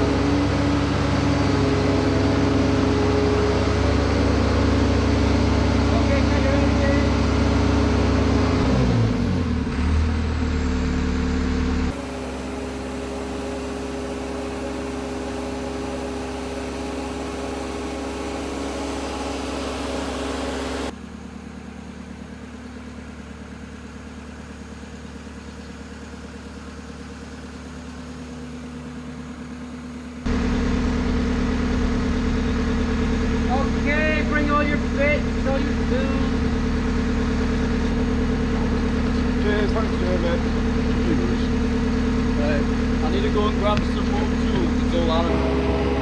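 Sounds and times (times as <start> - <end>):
engine idling: 0.0 - 46.0.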